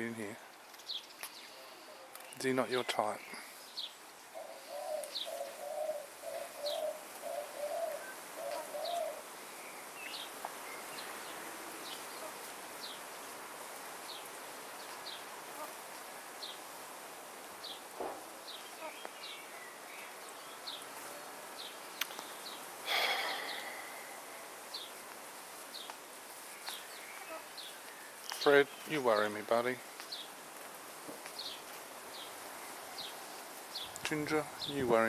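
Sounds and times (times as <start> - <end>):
bird low cooing: 4.3 - 10.2, 22.9 - 24.9
high falling bird chirp: 21.6 - 25.0.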